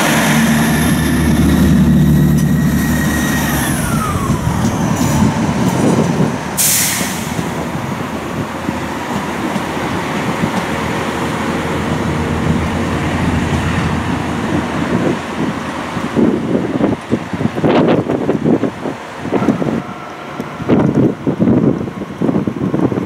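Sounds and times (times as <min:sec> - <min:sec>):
train engine rumbling: 0:00.0 - 0:23.0
air hiss: 0:06.6 - 0:07.6.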